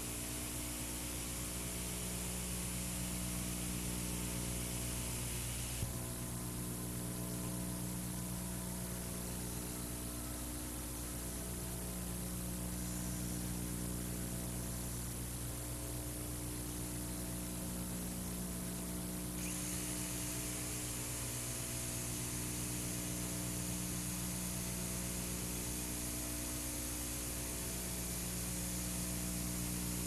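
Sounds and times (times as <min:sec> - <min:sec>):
electrical hum and hiss: 0:00.0 - 0:30.0.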